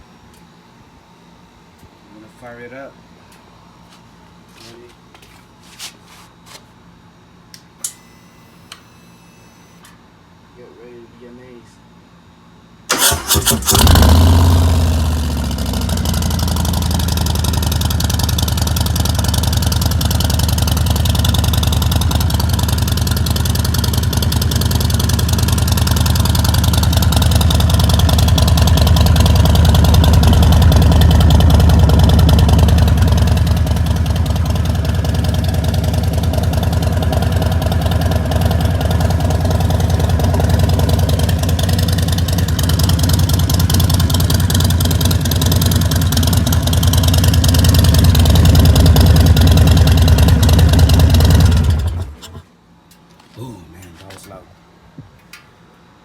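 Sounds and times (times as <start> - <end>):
motorcycle engine starting and idling: 12.9 - 54.4.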